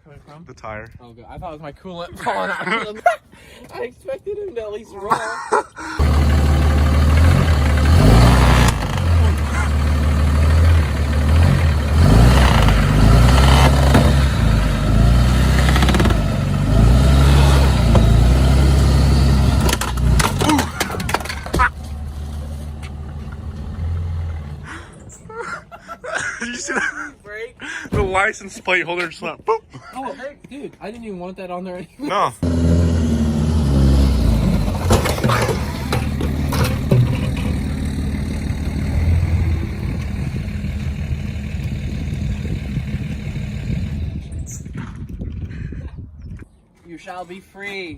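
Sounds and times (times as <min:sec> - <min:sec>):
sharp knocks and rattles: 0:06.0 - 0:23.9, 0:34.4 - 0:39.3
truck hitting something: 0:06.0 - 0:24.7, 0:32.4 - 0:42.4
truck engine revving: 0:06.0 - 0:25.0, 0:32.4 - 0:44.5.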